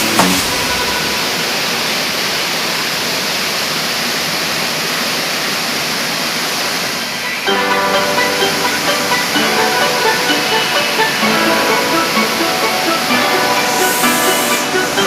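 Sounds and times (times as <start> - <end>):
waterfall rushing: 0.0 - 15.0
music: 7.4 - 15.0.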